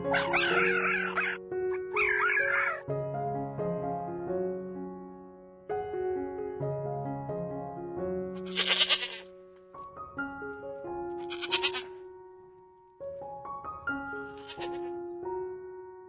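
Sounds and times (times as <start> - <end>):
gentle piano music: 0.0 - 16.0
animal's harsh rasping call: 0.1 - 2.8, 8.5 - 9.2, 11.2 - 11.9.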